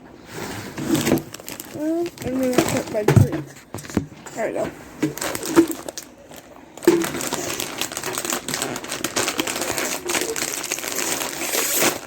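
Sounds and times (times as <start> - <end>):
chip bag crinkling: 0.8 - 3.3, 5.0 - 12.0.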